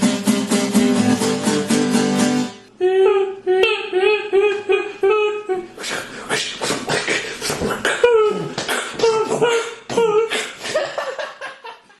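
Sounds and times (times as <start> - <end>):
person beatboxing: 3.0 - 11.0.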